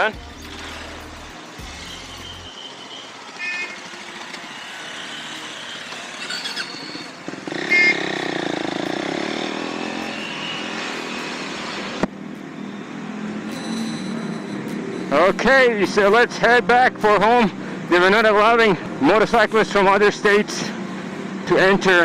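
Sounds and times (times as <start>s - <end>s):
motorcycle engines running: 0.0s - 22.0s
short high beeps: 13.4s - 15.2s.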